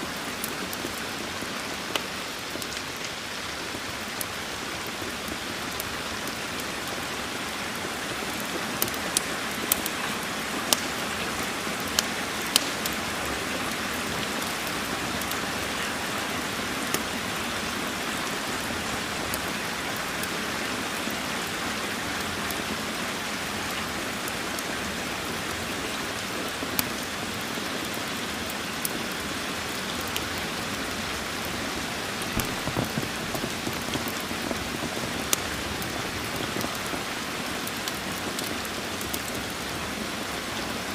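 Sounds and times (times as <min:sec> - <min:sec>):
rain hissing: 0:27.3 - 0:40.9
sharp pops: 0:32.4 - 0:34.6.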